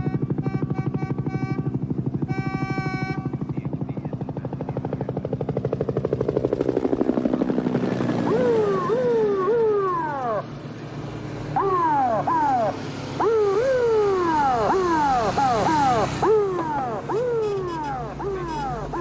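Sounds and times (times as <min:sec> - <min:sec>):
car horn: 0:00.0 - 0:03.4, 0:17.1 - 0:19.0
helicopter rotor chopping: 0:00.0 - 0:19.0
siren sweeping up and down: 0:08.1 - 0:19.0.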